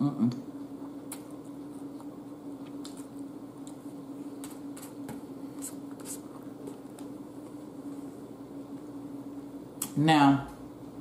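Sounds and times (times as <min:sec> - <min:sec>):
person chewing with wet smacks: 0:00.8 - 0:07.2.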